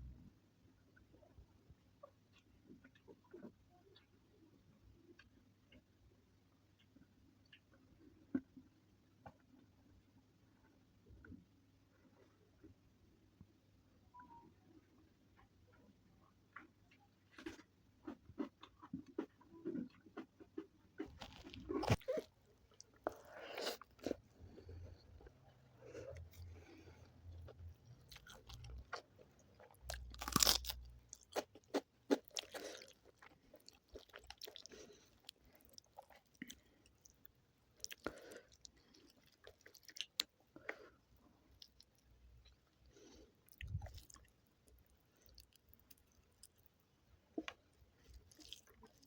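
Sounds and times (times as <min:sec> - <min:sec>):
close chewing and biting: 0:16.5 - 0:49.0.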